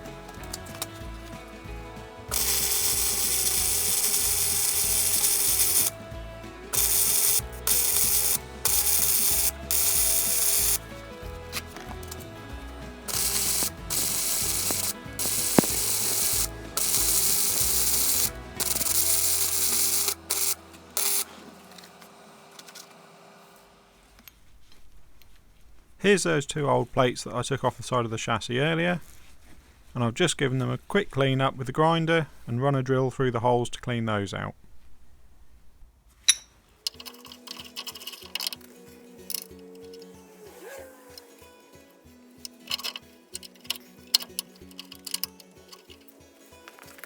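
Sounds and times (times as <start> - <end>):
welder arc crackling: 2.2 - 23.1.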